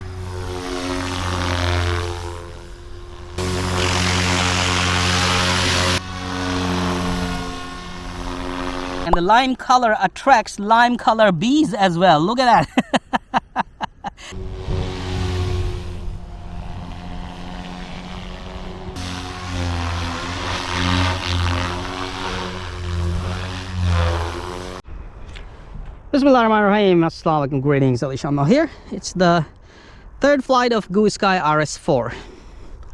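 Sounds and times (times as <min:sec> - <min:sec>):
rc helicopter buzzing hum: 0:00.0 - 0:09.1, 0:14.0 - 0:24.8.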